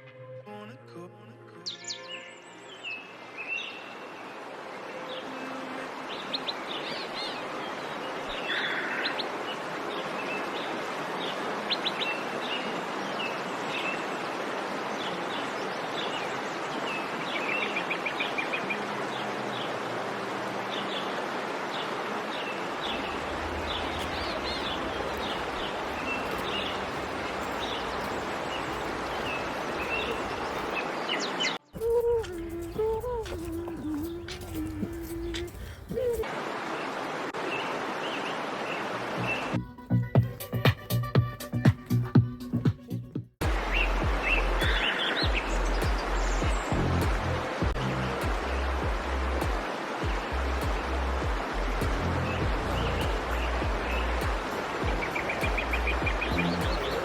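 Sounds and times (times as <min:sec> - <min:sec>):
small birds chirping: 0:22.8 - 0:36.2, 0:43.4 - 0:47.2, 0:51.8 - 0:57.0
background hiss: 0:22.8 - 0:36.8.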